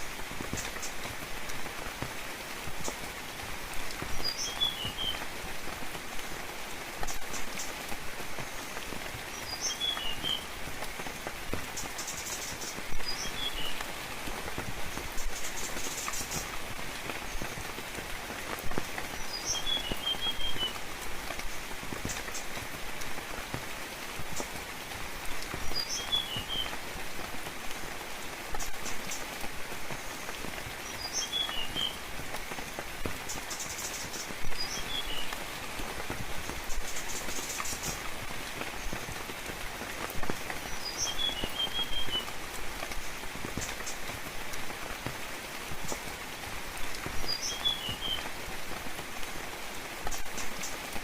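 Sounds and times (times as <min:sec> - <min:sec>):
rain falling on foliage: 0:00.0 - 0:51.0
bird singing: 0:12.0 - 0:13.8.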